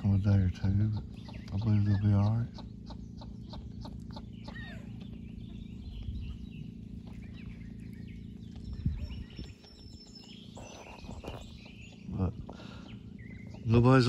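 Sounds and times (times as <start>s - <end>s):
duck and bird calls: 0.0s - 14.0s
steady low hum: 0.0s - 14.0s.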